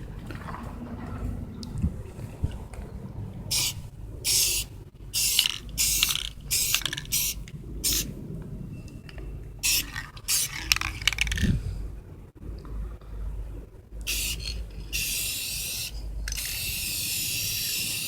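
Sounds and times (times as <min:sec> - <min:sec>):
aerosol can spraying: 0:14.1 - 0:14.4, 0:15.0 - 0:18.0.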